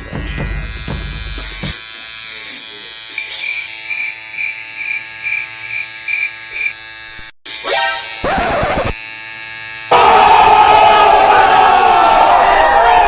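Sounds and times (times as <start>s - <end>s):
electric clipper buzzing: 0.0s - 10.6s
crowd yelling: 9.9s - 13.0s.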